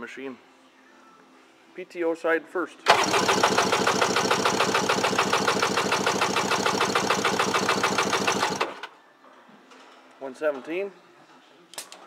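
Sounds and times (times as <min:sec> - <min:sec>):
engine cranking on starter: 0:02.9 - 0:08.9.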